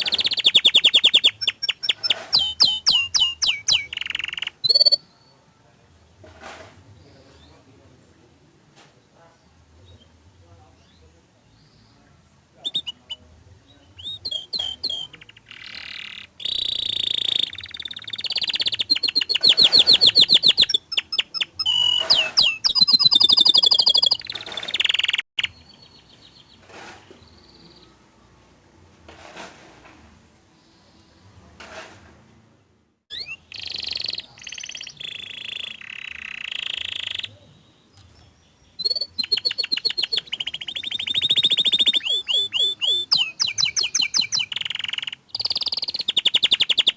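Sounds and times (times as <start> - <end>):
canary singing trills: 0.0 - 5.4, 12.6 - 28.0, 33.1 - 46.9.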